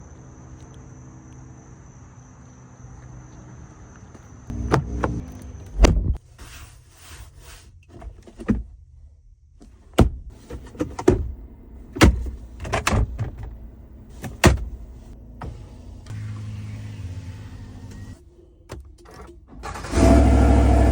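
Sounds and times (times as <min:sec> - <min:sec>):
low steady hum: 0:04.5 - 0:06.2
truck doors clicking and thunking: 0:04.5 - 0:06.2, 0:09.7 - 0:15.6.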